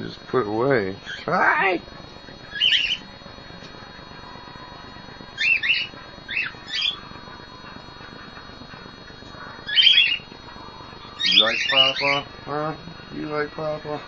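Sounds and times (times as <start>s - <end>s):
cockatiel squawking chirps: 2.5s - 3.0s.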